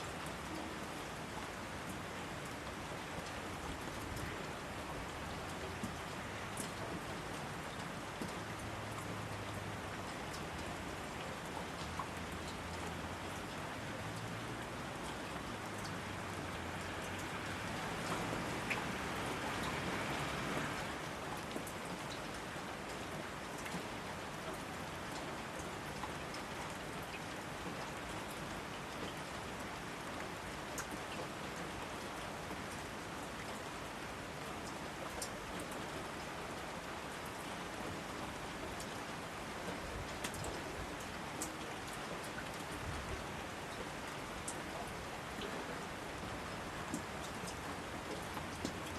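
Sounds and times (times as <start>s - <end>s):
steady rain falling: 0.0s - 48.9s
raindrops ticking: 0.2s - 35.8s, 37.2s - 42.9s, 43.6s - 48.9s.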